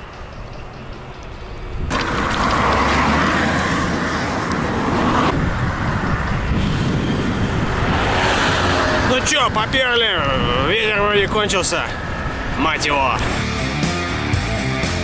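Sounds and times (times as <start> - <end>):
road and traffic noise: 0.0 - 15.0
wind on microphone: 1.4 - 13.3.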